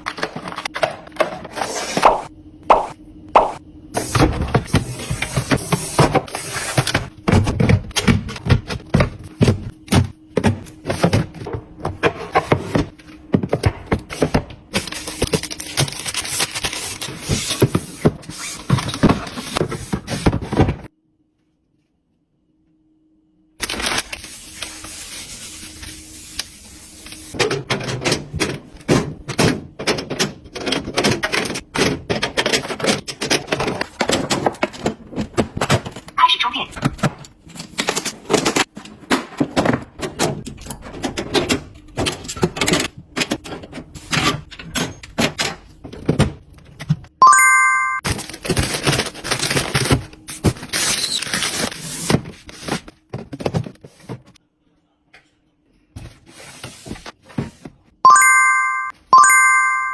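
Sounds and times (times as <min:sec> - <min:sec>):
kitchen items clattering: 0:00.0 - 0:02.3, 0:27.3 - 0:36.2, 0:51.5 - 0:54.4.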